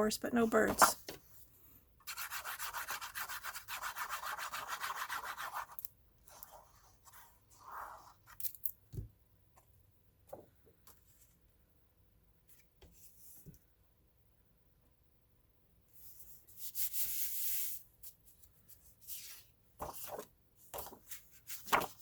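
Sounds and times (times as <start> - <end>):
paper handling: 0.6 - 1.2, 19.2 - 22.0
rubbing on paper: 2.1 - 5.8.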